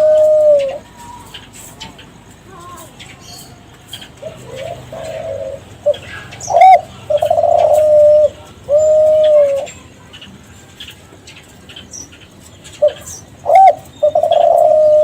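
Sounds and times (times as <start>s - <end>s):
dove cooing: 0.0s - 10.9s, 12.6s - 15.0s.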